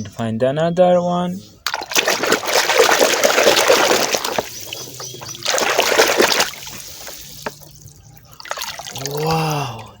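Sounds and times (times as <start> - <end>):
water splashing and sloshing: 1.6 - 9.6
water dripping: 1.7 - 10.0.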